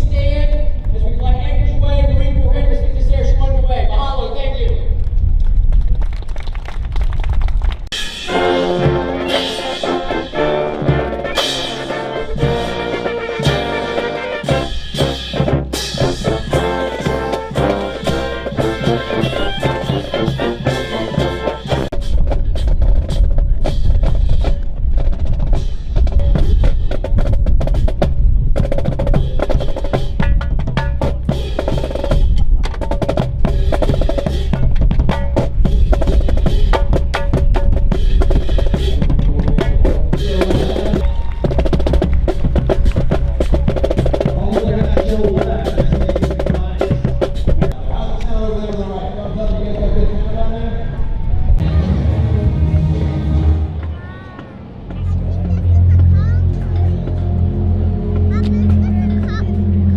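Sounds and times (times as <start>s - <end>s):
pitched instruments: 7.9s - 22.7s, 54.6s - 59.9s
heavy drums and percussion: 7.9s - 47.8s, 53.8s - 59.9s.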